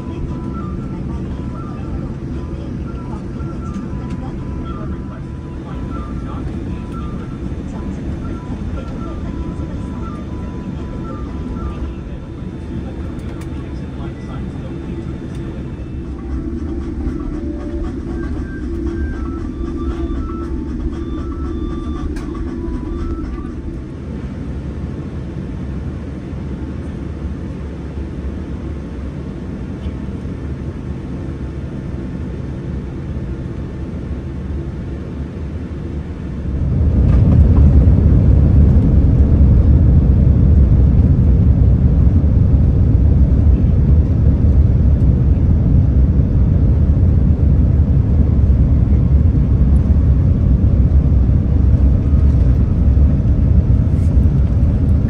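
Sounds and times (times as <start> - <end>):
airliner engine rumble in cabin: 0.0 - 55.0.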